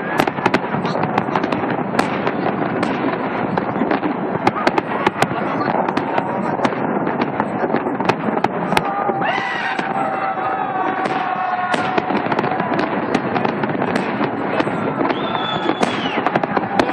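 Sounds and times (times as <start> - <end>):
fireworks crackling and popping: 0.0 - 16.9
firework whistling: 7.7 - 16.9.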